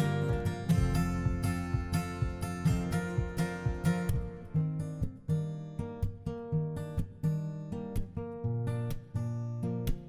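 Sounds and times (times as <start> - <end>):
acoustic guitar plucking and strumming: 0.0 - 10.0.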